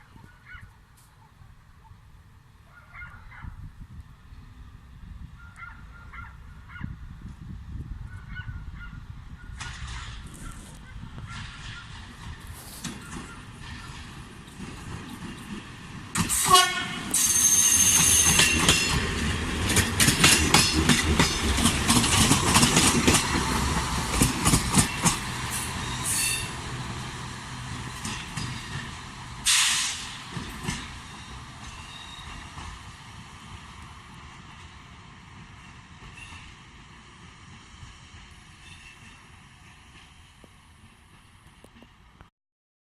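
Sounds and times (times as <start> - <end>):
train wheels clattering over rails: 9.6 - 42.0
high thin squeal: 17.1 - 18.6
loud burst of noise: 29.4 - 30.3.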